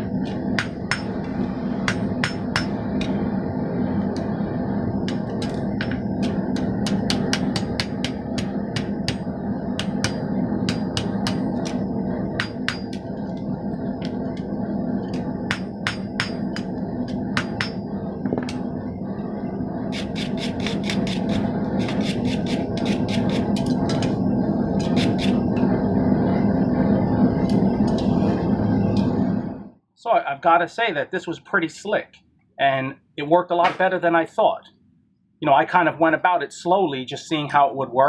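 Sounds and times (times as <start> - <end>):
hammer striking hot steel: 0.0 - 3.2, 5.0 - 13.3, 15.0 - 18.6
steady low hum: 0.0 - 29.8.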